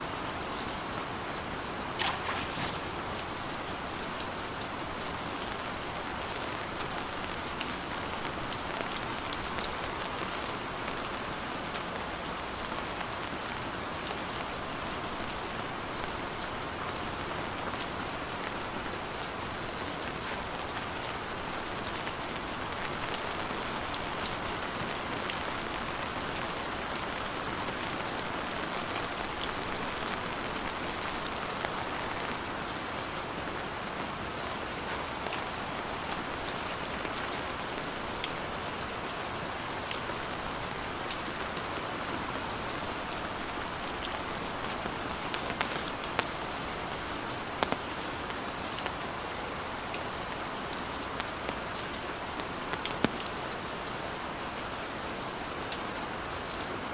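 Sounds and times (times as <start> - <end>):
raindrops ticking on a surface: 0.0 - 56.9
heavy rain hissing: 1.0 - 7.1, 17.6 - 54.6.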